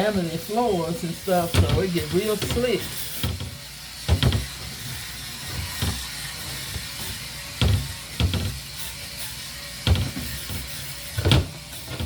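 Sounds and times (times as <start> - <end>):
dull knocks against shelves: 3.2 - 4.6, 7.6 - 8.6, 9.9 - 10.6, 11.2 - 12.0.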